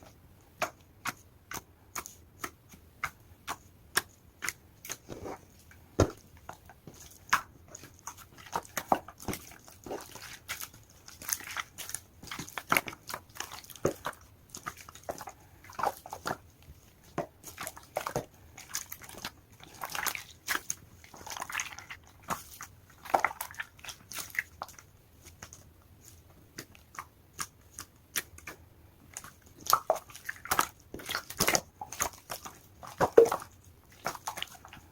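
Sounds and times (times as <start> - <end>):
slime wet squelches: 0.0 - 34.9.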